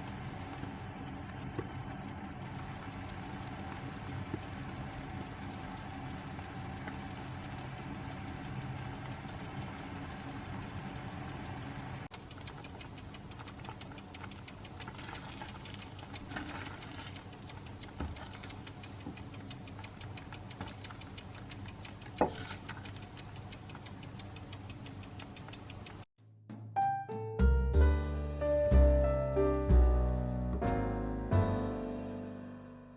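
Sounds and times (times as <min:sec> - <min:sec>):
light ticking and pattering: 0:00.0 - 0:26.1.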